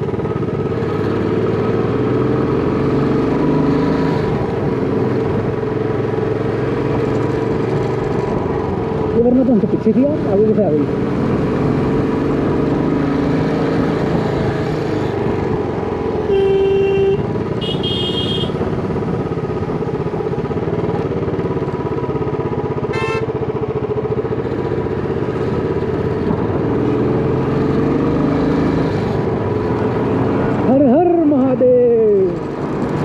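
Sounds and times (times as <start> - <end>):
motorcycle engine running: 0.0 - 33.0
vehicle horn honking: 16.2 - 18.6, 22.9 - 23.3
high-pitched horn beep: 16.3 - 18.6, 22.9 - 23.3.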